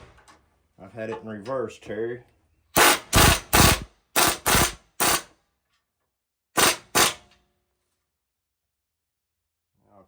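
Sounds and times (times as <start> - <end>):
impact wrench hammering: 2.8 - 5.3, 6.6 - 7.4.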